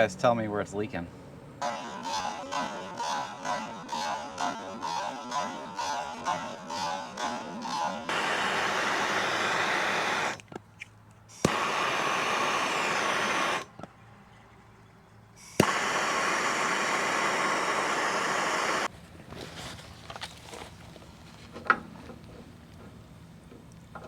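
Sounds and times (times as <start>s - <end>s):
engine running steadily: 8.1s - 14.3s, 15.3s - 24.0s.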